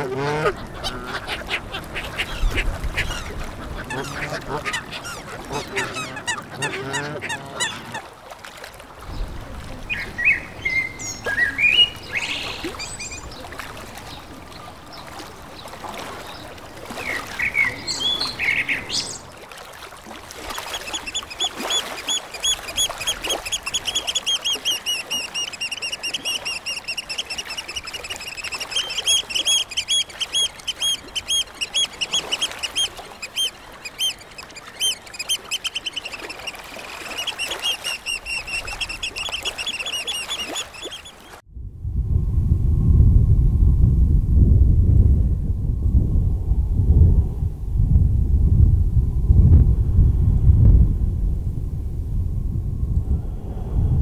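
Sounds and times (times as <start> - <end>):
birds calling: 0.0 - 8.1, 20.6 - 41.4.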